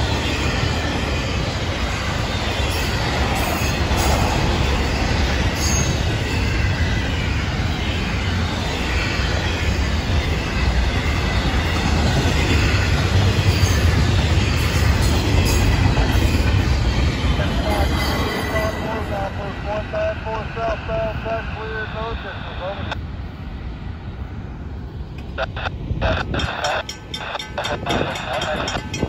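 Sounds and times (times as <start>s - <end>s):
steel wheels rumbling on rails: 0.0s - 22.1s, 23.7s - 29.0s.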